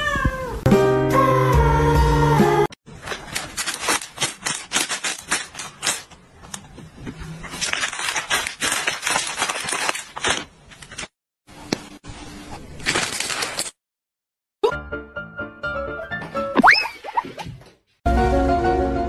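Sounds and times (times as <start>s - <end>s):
plastic snack bag crinkling: 2.9s - 6.1s, 7.4s - 11.1s, 12.7s - 13.8s.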